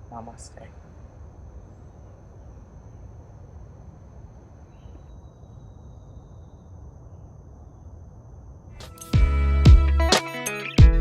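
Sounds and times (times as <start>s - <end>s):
insect drone: 0.0s - 9.2s
high faint whine: 0.0s - 9.4s
low rumble and hiss: 0.0s - 9.7s.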